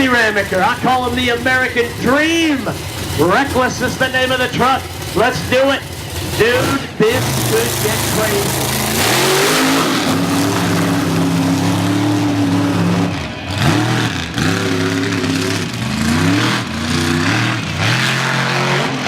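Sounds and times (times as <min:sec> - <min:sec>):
truck engine revving: 0:00.0 - 0:19.0.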